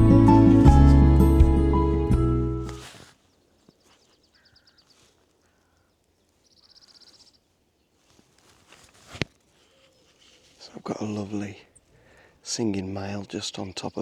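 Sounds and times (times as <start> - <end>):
bird singing a rapid trill: 4.0 - 5.0, 5.7 - 7.4, 13.3 - 14.0.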